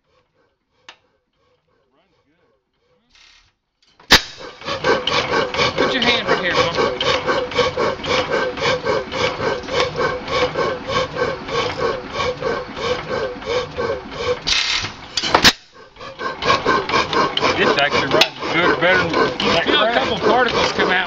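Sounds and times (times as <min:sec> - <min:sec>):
sharp loud crack: 0:04.1 - 0:04.4
gas engine running: 0:04.1 - 0:21.0.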